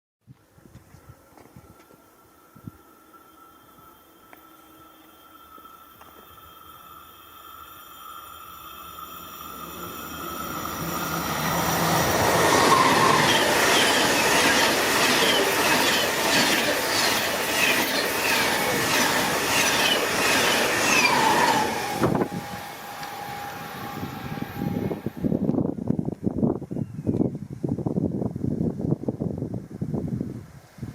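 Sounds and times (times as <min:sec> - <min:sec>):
faint steady tone: 0:01.1 - 0:11.5
high-speed train passing: 0:01.1 - 0:26.4.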